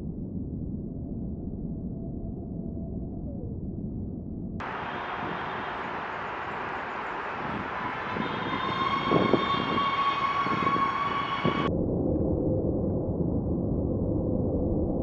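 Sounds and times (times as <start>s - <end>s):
jet airliner engines running: 4.6s - 11.7s.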